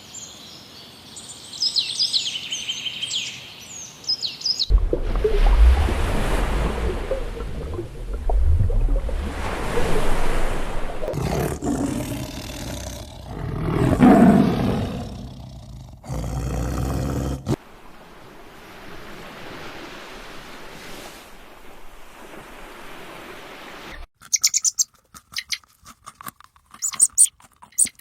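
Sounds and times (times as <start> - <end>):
steady wash like surf: 4.7 - 11.2, 17.6 - 24.0
large animal roaring: 11.1 - 17.6.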